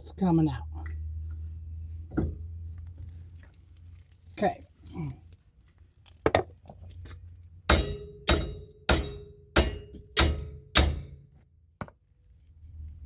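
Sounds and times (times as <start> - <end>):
hammer striking metal: 7.7 - 11.3.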